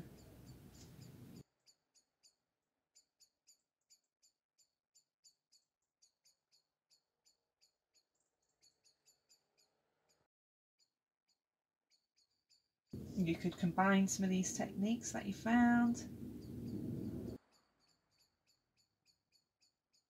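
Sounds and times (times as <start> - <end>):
small bird chirping: 0.0 - 2.4, 3.0 - 10.3, 16.0 - 20.0.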